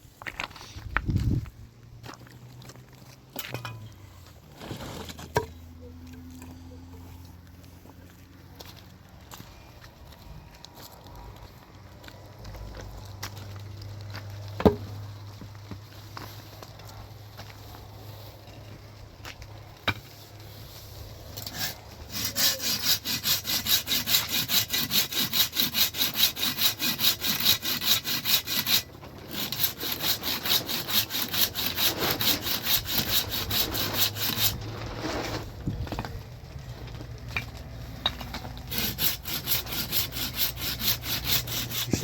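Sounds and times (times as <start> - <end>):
hand saw cutting wood: 21.3 - 35.5, 38.1 - 42.0.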